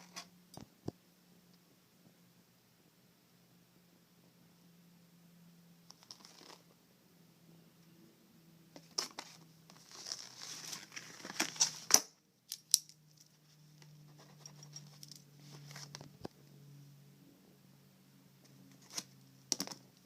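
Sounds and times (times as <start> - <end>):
faint low hum: 0.0 - 20.0
packaging crinkling and tearing: 9.0 - 12.9.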